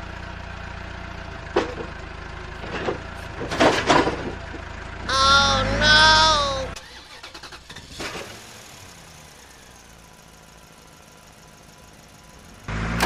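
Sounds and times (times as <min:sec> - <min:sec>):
pitched tone: 0:05.1 - 0:06.8.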